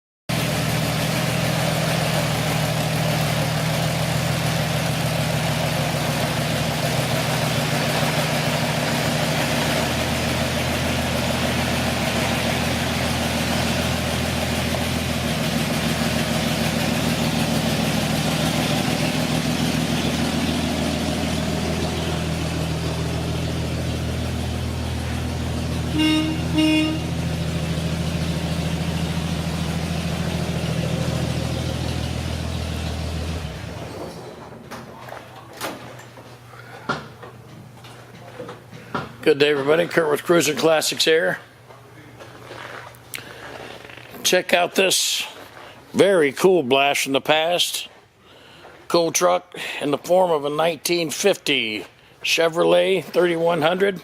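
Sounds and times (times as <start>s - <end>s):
pickup truck engine running: 0.3s - 35.0s
horn toots: 25.8s - 27.7s.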